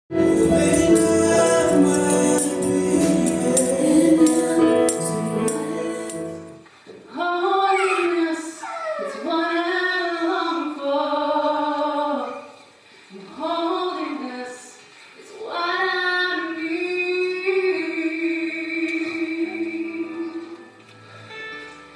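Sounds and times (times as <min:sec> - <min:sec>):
upbeat music with singing: 0:00.1 - 0:06.6
person singing unaccompanied: 0:00.1 - 0:12.6.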